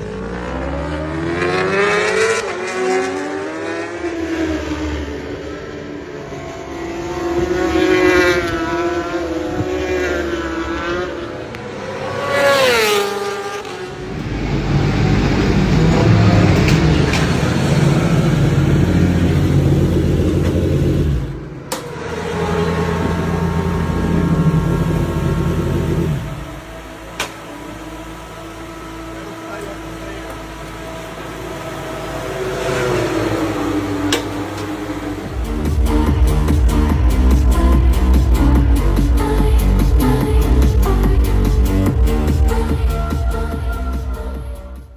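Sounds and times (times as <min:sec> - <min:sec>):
superbike engines at high revs: 0:06.6 - 0:43.4
deep engine rumble: 0:13.6 - 0:44.9.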